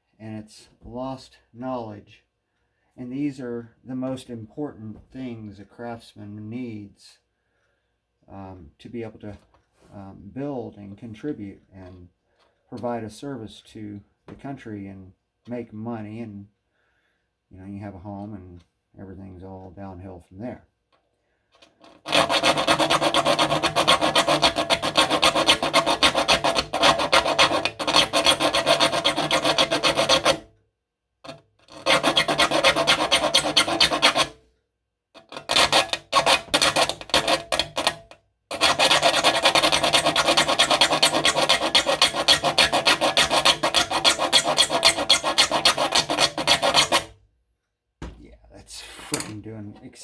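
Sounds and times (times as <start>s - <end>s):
metal file rasping on saw teeth: 21.6s - 30.5s, 31.3s - 34.4s, 35.2s - 47.2s.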